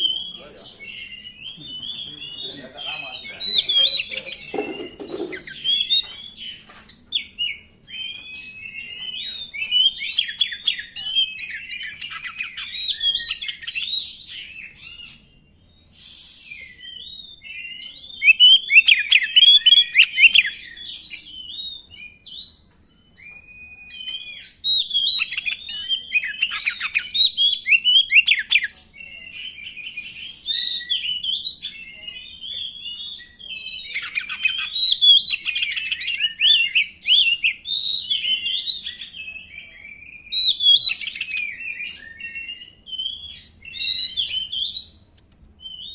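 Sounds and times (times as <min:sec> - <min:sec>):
bird singing whistles and trills: 0:00.0 - 0:45.9
harsh bird hiss: 0:15.9 - 0:16.6.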